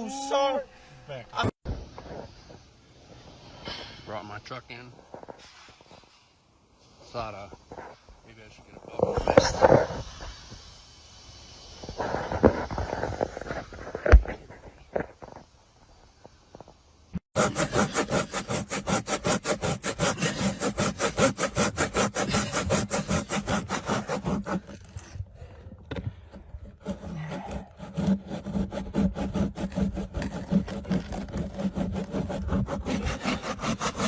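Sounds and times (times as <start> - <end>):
fast rasping strokes: 17.2 - 34.0.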